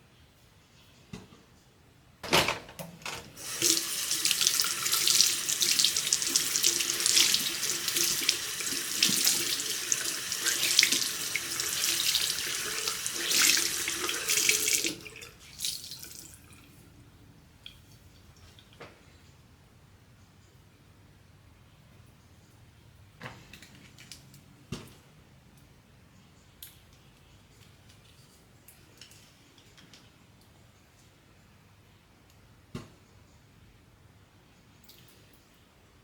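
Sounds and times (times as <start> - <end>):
tap water running into sink: 3.4 - 16.4.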